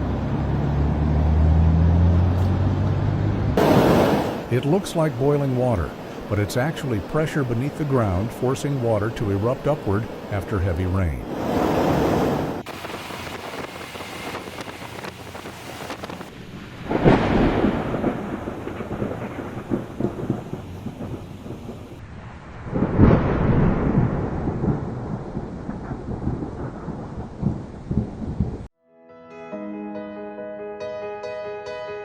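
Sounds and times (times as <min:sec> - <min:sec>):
thunder claps rumbling: 0:03.6 - 0:10.6, 0:11.2 - 0:28.7
steady rain: 0:03.6 - 0:28.7.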